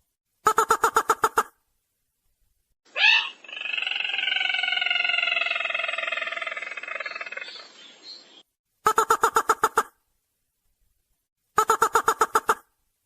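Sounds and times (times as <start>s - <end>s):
long buzzy falling bird call: 2.9s - 8.0s.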